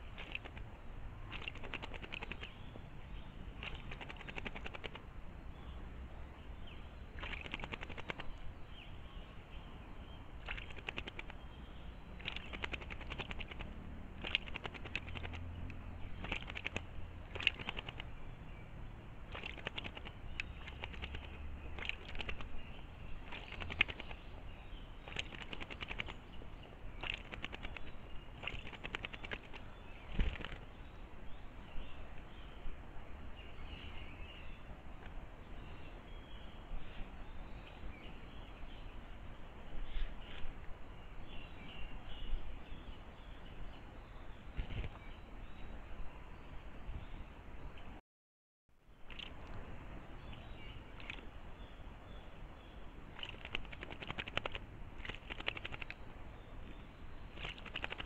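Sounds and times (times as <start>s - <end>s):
bird splashing in water: 0.0s - 2.6s, 3.5s - 5.1s, 7.1s - 8.4s, 10.4s - 18.2s, 19.2s - 30.8s, 49.1s - 49.6s, 50.9s - 51.3s, 53.1s - 56.0s, 56.7s - 58.0s.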